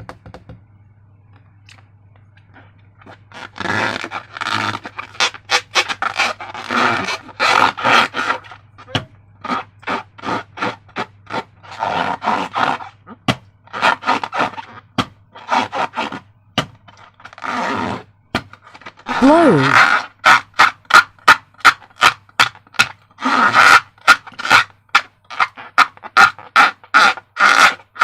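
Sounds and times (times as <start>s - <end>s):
slime squishing by hand: 17.8s - 22.9s.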